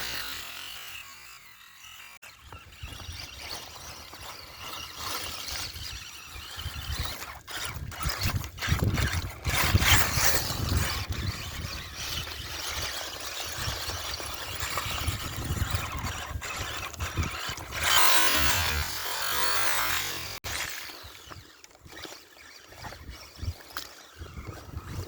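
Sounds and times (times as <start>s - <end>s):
rc truck running through mud: 0.0s - 25.0s
wind buffeting microphone: 5.6s - 19.0s, 22.7s - 25.0s.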